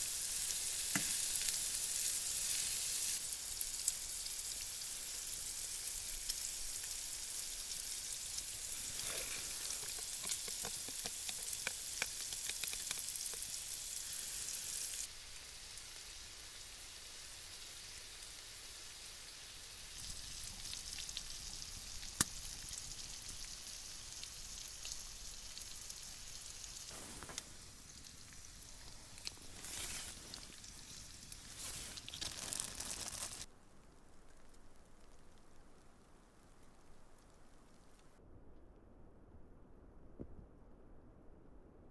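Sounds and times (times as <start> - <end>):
stir-fry sizzling in pan: 0.0 - 33.5
utensil clicks stirring: 8.8 - 13.6.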